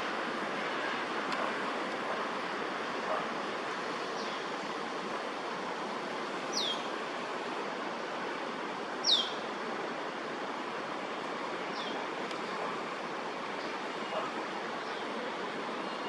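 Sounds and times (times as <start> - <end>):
outdoor ambience rush: 0.0 - 16.0.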